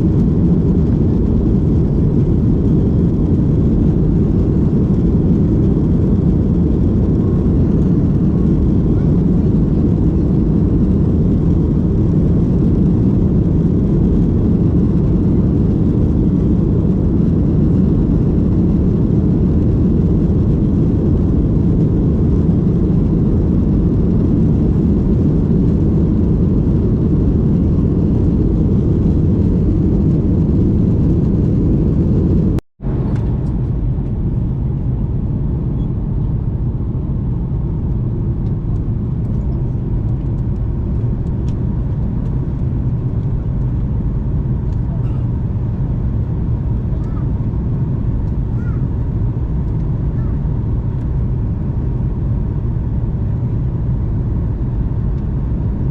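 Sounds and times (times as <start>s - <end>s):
airliner cabin rumble: 0.0s - 55.9s.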